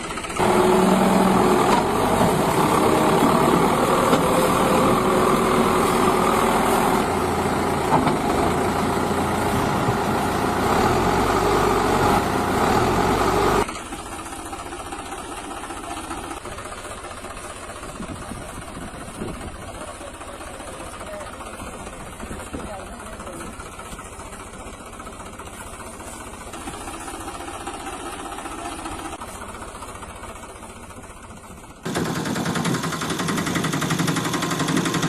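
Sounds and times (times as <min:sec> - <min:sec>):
quieter engine running: 0:00.0 - 0:35.0
vehicle engine idling: 0:00.0 - 0:35.0.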